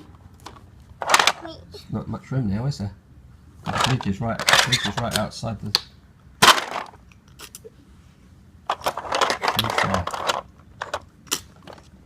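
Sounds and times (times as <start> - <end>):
plastic toys clattering: 0.0 - 1.6, 3.6 - 5.3, 6.4 - 7.2, 8.6 - 12.0.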